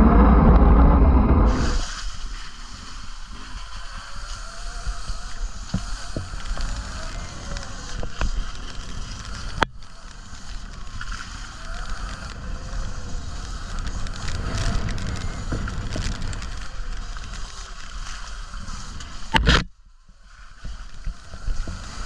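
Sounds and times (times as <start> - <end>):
wind buffeting microphone: 0.0 - 2.3, 3.0 - 17.6.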